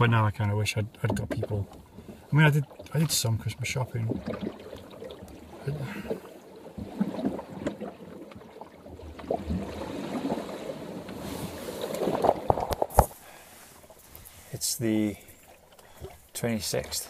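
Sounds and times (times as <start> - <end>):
water slapping against boat hull: 0.8 - 13.2.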